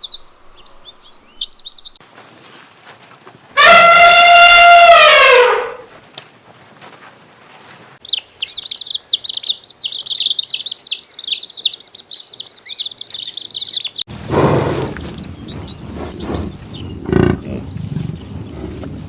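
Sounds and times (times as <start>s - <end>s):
small birds chirping: 0.0s - 2.0s, 8.0s - 18.9s
loud pitched animal call: 3.6s - 5.9s.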